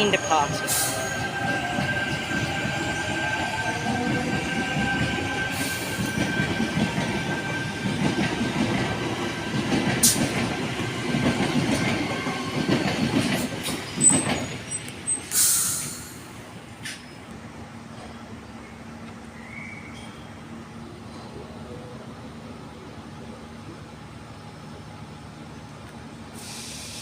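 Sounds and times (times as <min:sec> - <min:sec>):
wheels rumbling on rail: 0:00.0 - 0:27.0
short hiss: 0:15.3 - 0:16.2, 0:26.4 - 0:27.0.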